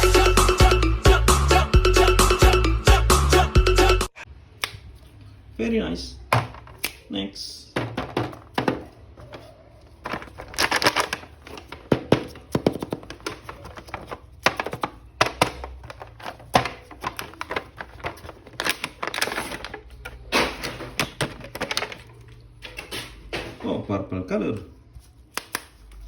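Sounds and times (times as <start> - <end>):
plastic packaging crinkling: 9.2 - 20.3, 21.0 - 22.4.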